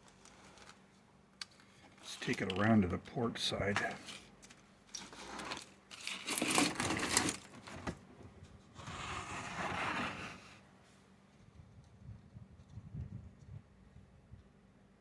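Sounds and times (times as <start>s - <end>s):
plastic model clattering and rustling: 0.0s - 8.1s
scraping rustle: 3.8s - 11.0s.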